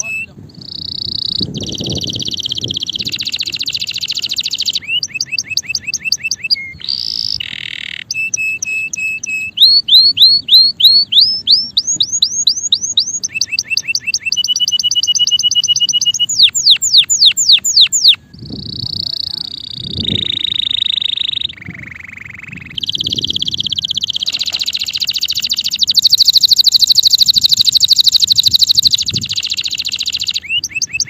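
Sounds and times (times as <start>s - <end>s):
canary singing: 0.0s - 31.0s.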